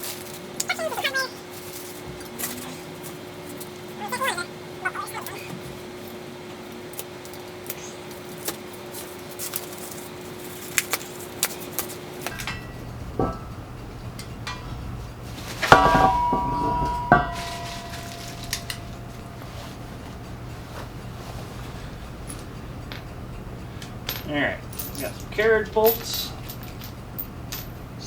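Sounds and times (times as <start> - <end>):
metal hardware clinking: 12.2 - 28.0
ringing metal clanks: 12.3 - 28.0.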